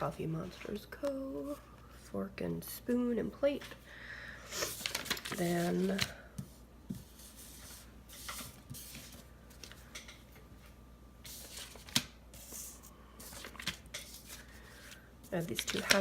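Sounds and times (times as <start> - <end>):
paper rustling and scraping: 4.6 - 6.1, 6.9 - 9.8, 11.2 - 16.0.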